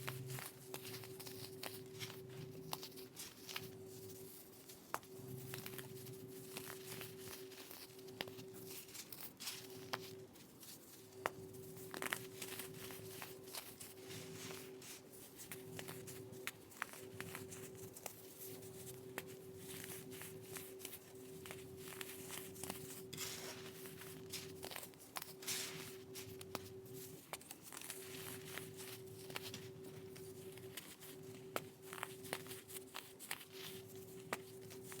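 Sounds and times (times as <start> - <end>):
steady low hum: 0.0 - 35.0
baking soda crunching: 18.7 - 35.0.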